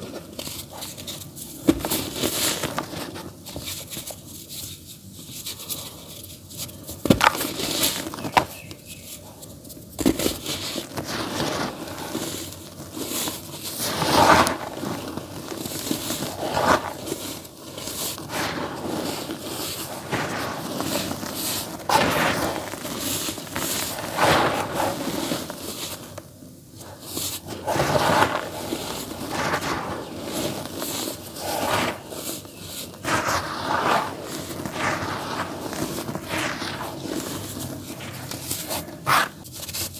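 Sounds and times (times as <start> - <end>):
dirt crumbling and crunching: 13.8 - 26.2, 27.4 - 39.4.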